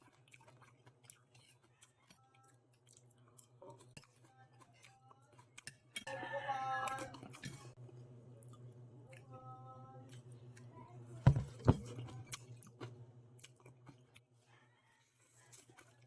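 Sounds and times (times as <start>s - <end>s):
person chewing and eating: 0.0s - 6.2s, 6.8s - 9.3s, 10.1s - 10.7s, 11.3s - 14.4s, 15.0s - 16.0s
steady low hum: 7.2s - 14.2s
sharp knocks: 11.3s - 11.8s.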